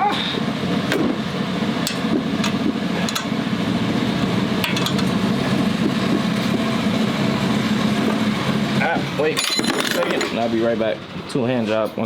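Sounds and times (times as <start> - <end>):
metal tools clinking: 9.2 - 10.5.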